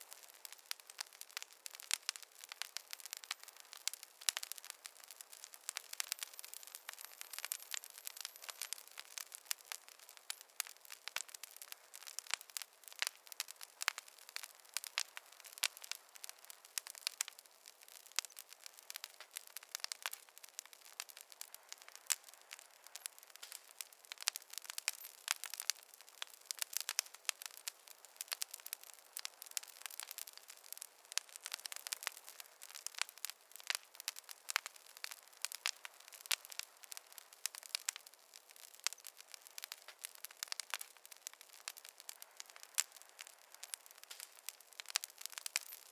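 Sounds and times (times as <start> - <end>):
campfire crackling: 0.0 - 45.9
soft fire hiss: 0.0 - 45.9.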